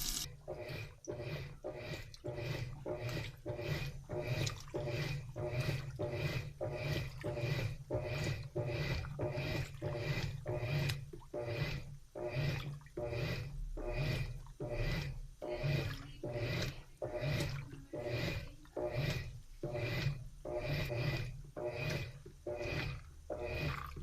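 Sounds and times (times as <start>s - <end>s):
washing machine swishing load: 0.0s - 0.4s, 22.6s - 24.0s.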